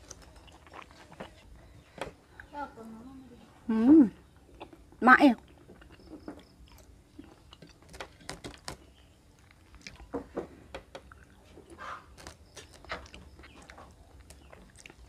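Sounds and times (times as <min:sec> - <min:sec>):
cucumber crunching: 0:00.0 - 0:01.5, 0:11.0 - 0:15.0.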